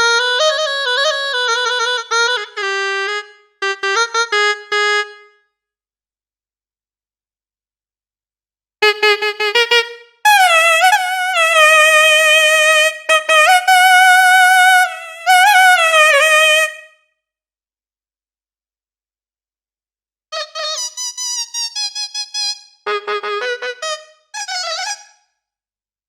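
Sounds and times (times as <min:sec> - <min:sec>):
solo wind instrument: 0:00.0 - 0:05.4, 0:08.8 - 0:17.0, 0:20.4 - 0:25.2.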